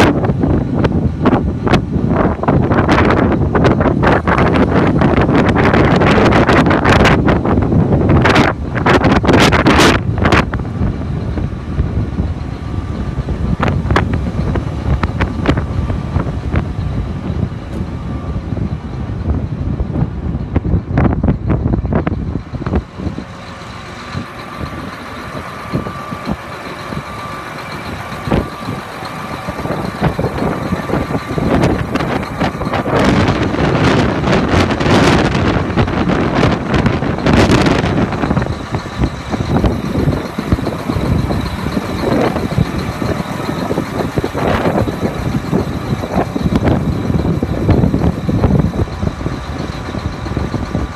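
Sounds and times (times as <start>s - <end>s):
tractor diesel engine running: 0.0s - 50.9s
wind buffeting microphone: 0.0s - 50.9s.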